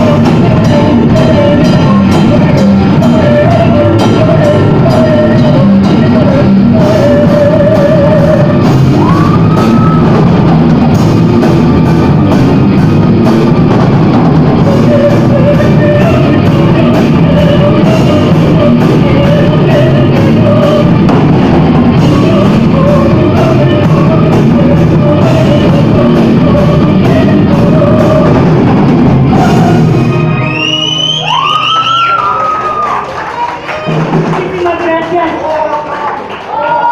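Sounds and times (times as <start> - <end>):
person singing long held notes: 0.0 - 10.2, 14.5 - 28.7, 29.3 - 30.5
drum kit: 0.0 - 35.4
guitars: 0.0 - 35.4.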